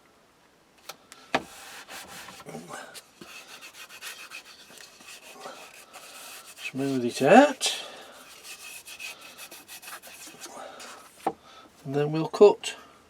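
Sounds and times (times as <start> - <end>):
scratchy rubbing of felt: 1.4 - 11.3.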